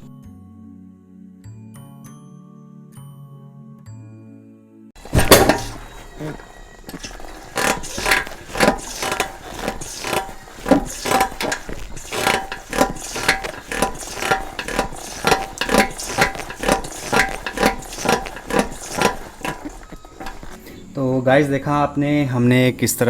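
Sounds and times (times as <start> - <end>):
motorcycle forks knocking: 5.0 - 20.6.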